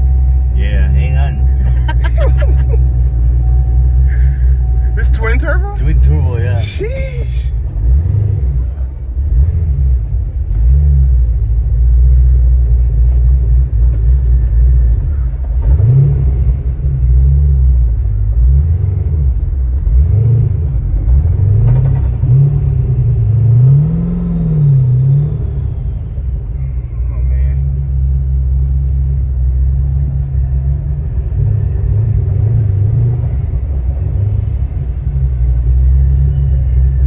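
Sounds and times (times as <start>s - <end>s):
car engine revving: 0.0s - 26.8s.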